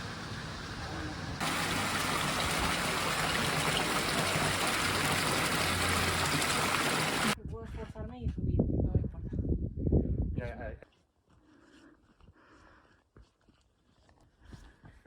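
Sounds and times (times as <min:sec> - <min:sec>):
running water rushing: 0:00.0 - 0:07.4.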